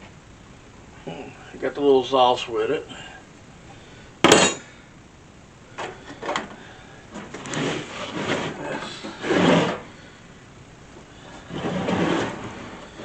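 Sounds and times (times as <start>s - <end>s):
parts clattering: 4.2s - 4.7s, 5.8s - 9.9s
packaging scraping and rustling: 7.2s - 9.9s, 11.4s - 13.0s.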